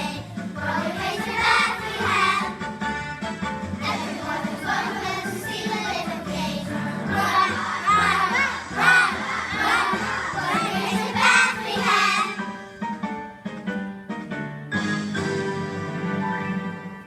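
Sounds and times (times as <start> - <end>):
children singing: 0.0 - 2.6, 3.8 - 12.4
musical accompaniment: 0.0 - 17.0.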